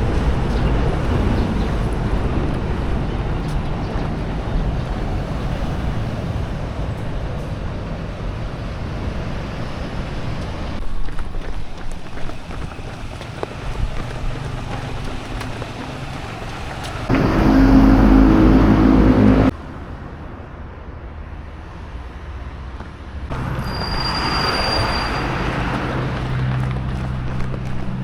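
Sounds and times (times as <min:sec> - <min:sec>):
engine low hum: 0:17.1 - 0:19.5
thin high whine: 0:17.1 - 0:19.5.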